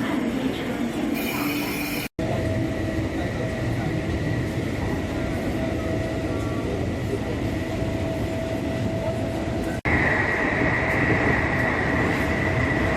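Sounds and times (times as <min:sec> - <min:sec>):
train running noise: 0:00.0 - 0:12.9.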